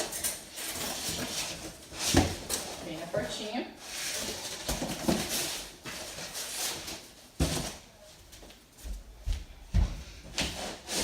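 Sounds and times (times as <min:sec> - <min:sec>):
cardboard scraping rustles: 0:00.0 - 0:03.1, 0:03.8 - 0:07.8, 0:10.4 - 0:11.0.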